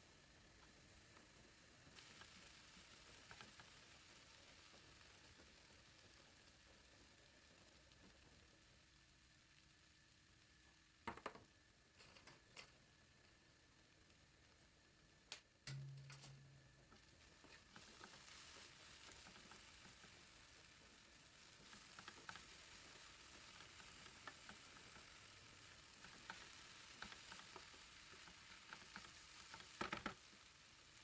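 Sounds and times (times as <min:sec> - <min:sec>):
food sizzling in a pan: 0:00.0 - 0:31.0
click: 0:15.3 - 0:16.4.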